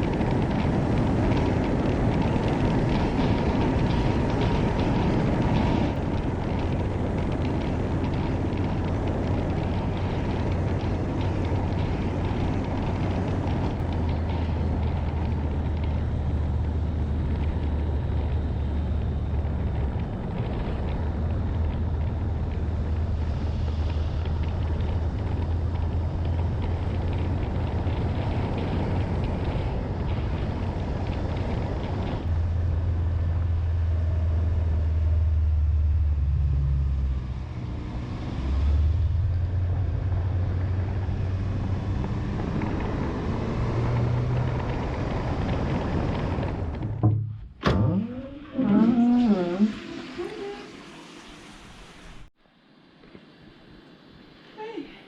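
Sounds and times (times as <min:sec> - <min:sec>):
low engine rumble: 0:00.0 - 0:52.4.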